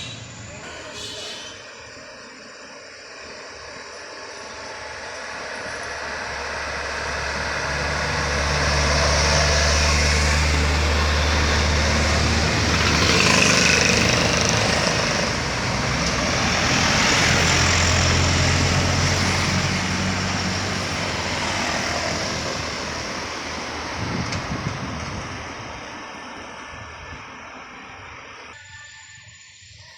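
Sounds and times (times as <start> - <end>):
tyre and road noise: 0.0 - 2.4, 4.1 - 28.6
diesel trucks driving uphill: 0.0 - 28.6.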